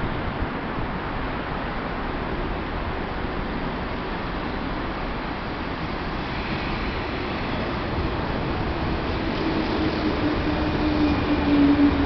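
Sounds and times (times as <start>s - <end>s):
train rumble and rail noise: 0.0s - 12.0s.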